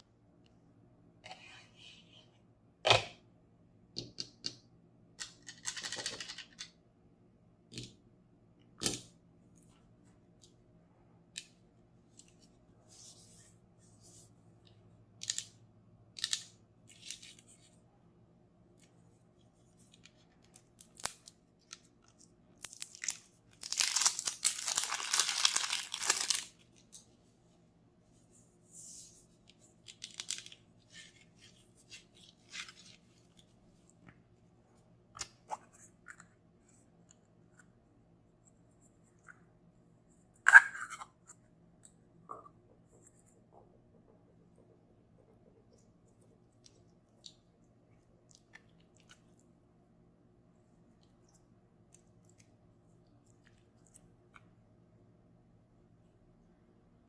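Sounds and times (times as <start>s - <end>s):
packaging tearing: 22.9s - 26.5s
packaging rustling: 22.9s - 26.6s.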